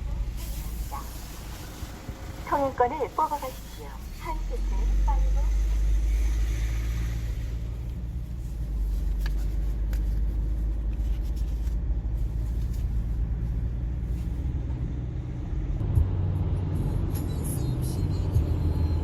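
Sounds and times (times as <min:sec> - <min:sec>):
car engine: 0:00.0 - 0:19.0
road rumble: 0:00.0 - 0:19.0.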